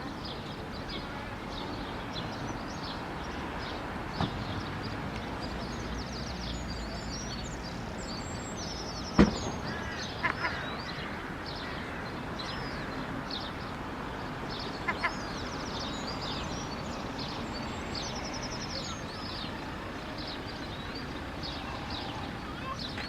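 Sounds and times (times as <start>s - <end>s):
birds chirping: 0.0s - 23.0s
low paired bird calls: 0.0s - 23.0s
outdoor background noise: 0.0s - 23.0s
sharp knock: 9.2s - 9.7s.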